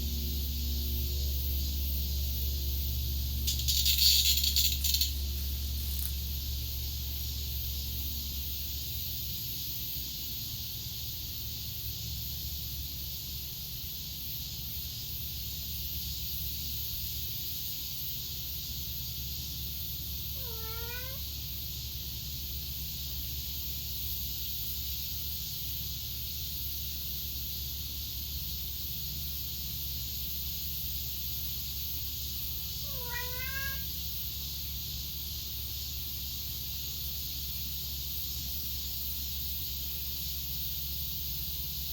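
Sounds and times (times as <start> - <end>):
steady high hiss: 0.0 - 41.9
cat meowing: 20.4 - 21.3, 32.8 - 34.0.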